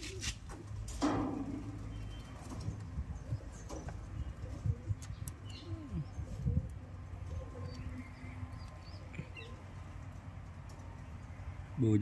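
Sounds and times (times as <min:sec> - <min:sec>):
bird cooing: 0:03.2 - 0:09.7.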